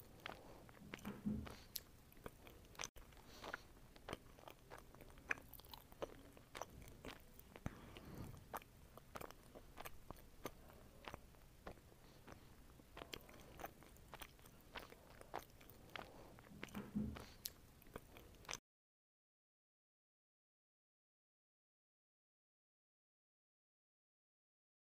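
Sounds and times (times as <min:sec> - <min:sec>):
person chewing and biting fruit: 0:00.0 - 0:18.6.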